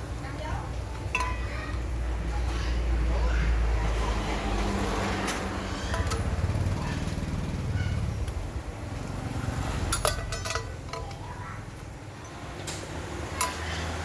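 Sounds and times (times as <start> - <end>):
metallic clicks and clinks: 1.0 - 1.5, 5.1 - 6.6, 9.7 - 11.5, 12.2 - 14.0
rapid mechanical rattle: 3.9 - 14.0.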